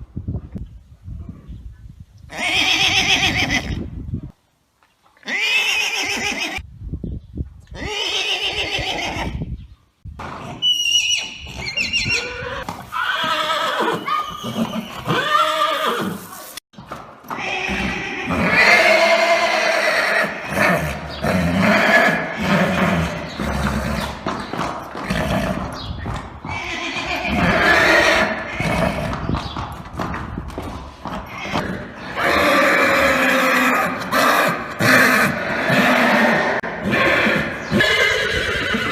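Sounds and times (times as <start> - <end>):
horse neighing and whinnying: 2.3 - 3.8, 5.2 - 6.6, 7.7 - 9.4, 10.5 - 16.3, 17.2 - 24.2, 24.8 - 25.8, 26.4 - 29.2, 31.2 - 38.9.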